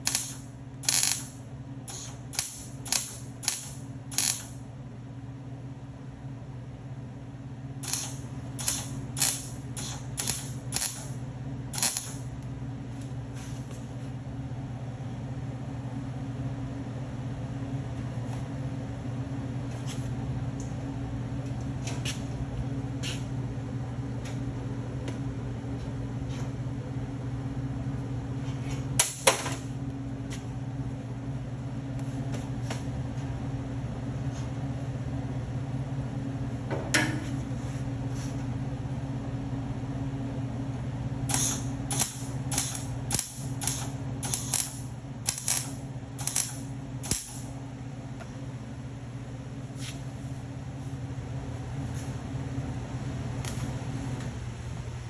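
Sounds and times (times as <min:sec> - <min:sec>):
welding crackling pops: 0:00.0 - 0:04.6, 0:07.8 - 0:11.1, 0:11.8 - 0:12.2, 0:41.3 - 0:47.4
steady electrical hum: 0:00.0 - 0:55.0.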